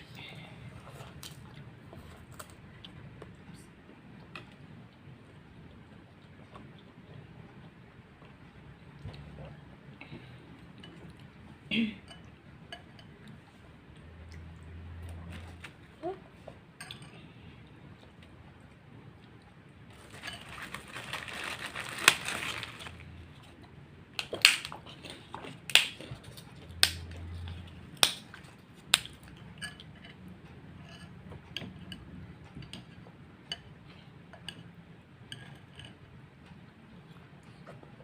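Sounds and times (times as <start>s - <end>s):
utensils clinking against bowl: 20.0s - 21.3s, 29.3s - 30.2s.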